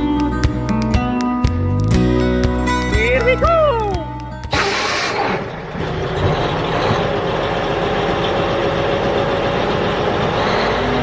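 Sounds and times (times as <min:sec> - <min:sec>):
tractor engine running: 0:04.4 - 0:11.0.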